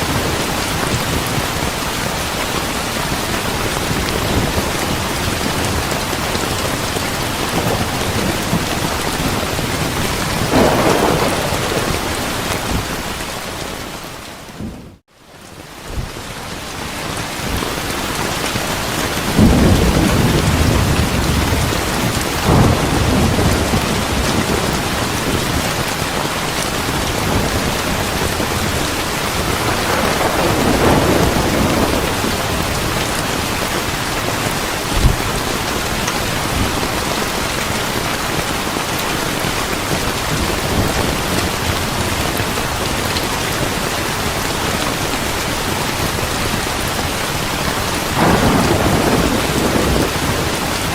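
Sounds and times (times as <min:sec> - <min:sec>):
heavy rain: 0:00.0 - 0:50.9
low rolls of thunder: 0:06.4 - 0:13.9, 0:19.2 - 0:25.9, 0:27.0 - 0:33.4, 0:48.2 - 0:50.9.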